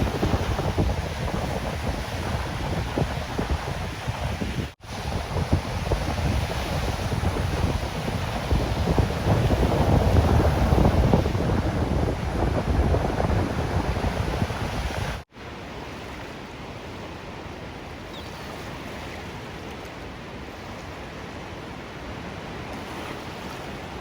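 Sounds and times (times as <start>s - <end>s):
wind rumbling on microphone: 0.0s - 15.3s
ocean surf washing: 0.0s - 24.0s.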